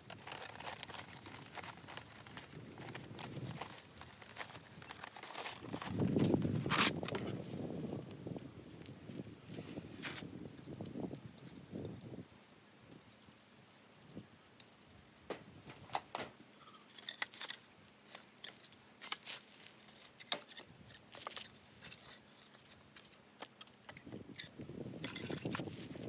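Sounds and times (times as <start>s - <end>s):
camping gear clicking and clattering: 0.0s - 7.4s, 15.3s - 26.0s
rustling: 0.0s - 7.9s, 17.3s - 23.3s.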